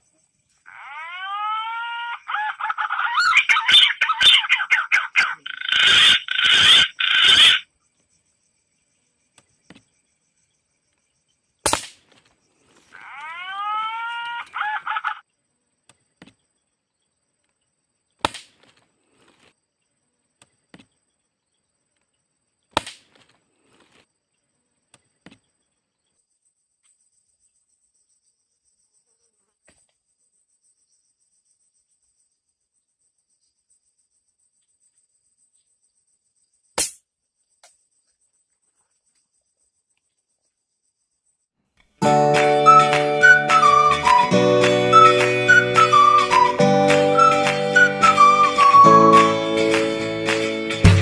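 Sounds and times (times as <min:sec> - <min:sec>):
bird whistling rising calls: 0:42.6 - 0:49.4.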